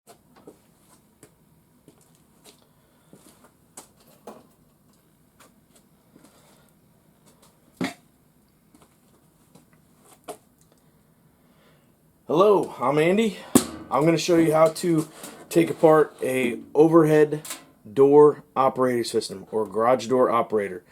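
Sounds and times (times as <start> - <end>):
loud knock: 13.6 - 14.6.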